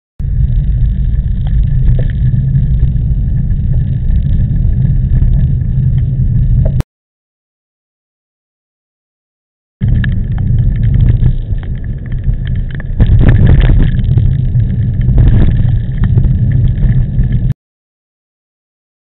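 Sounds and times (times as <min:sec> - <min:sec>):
wind buffeting microphone: 0:09.8 - 0:17.5.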